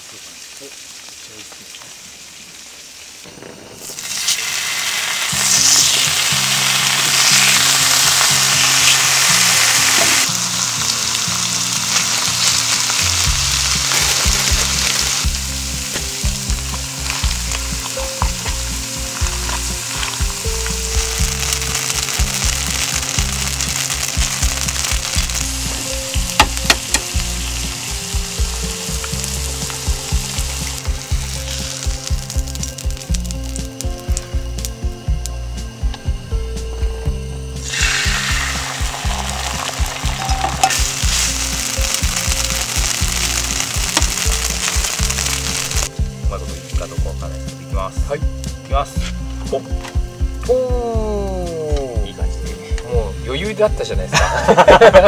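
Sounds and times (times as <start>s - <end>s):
food sizzling on a griddle: 0.0s - 36.2s, 36.8s - 55.0s
background music with bass: 4.4s - 55.0s.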